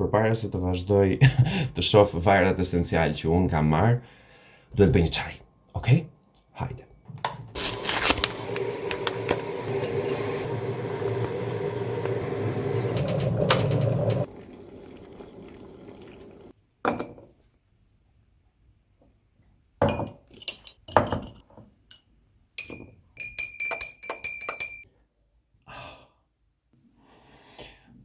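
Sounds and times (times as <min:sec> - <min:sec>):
appliance hum: 0:07.5 - 0:16.5
spoon clinking against ceramic cup: 0:22.6 - 0:24.8.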